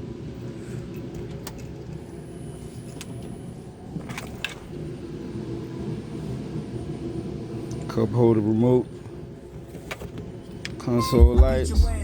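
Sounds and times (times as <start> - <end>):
car engine idling: 11.2 - 12.0.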